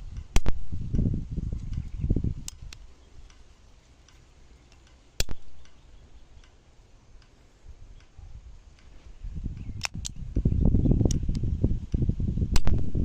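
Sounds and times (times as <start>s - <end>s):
small handling clicks: 1.6s - 5.8s, 9.6s - 10.2s.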